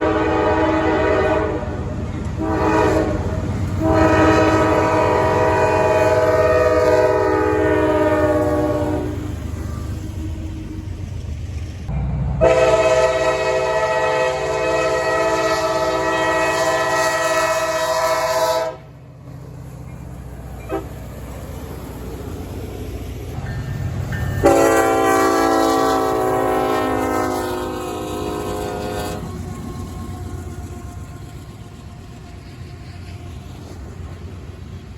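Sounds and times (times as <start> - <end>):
locomotive horn blasts: 0.0 - 9.8, 12.4 - 18.9, 20.6 - 21.0, 24.4 - 31.4
train engine and wheels rumbling: 0.0 - 34.9.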